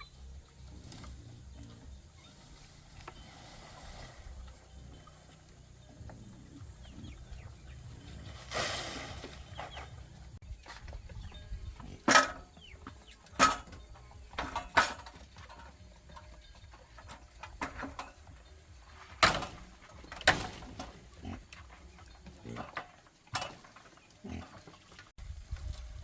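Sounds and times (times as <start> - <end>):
pigs grunting and squealing: 20.9 - 23.5, 24.1 - 24.9.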